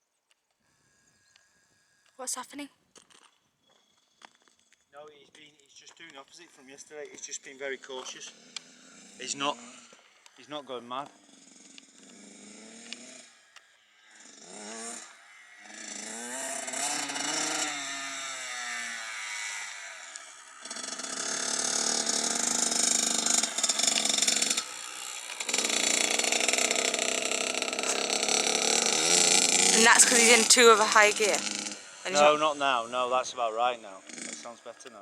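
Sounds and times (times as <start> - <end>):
dirt bike engine revving: 21.2 - 32.1.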